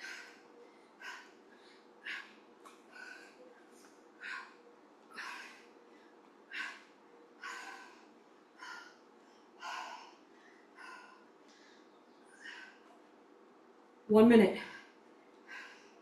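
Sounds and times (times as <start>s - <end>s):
woman breathing hard: 0.0s - 13.1s, 14.6s - 16.0s.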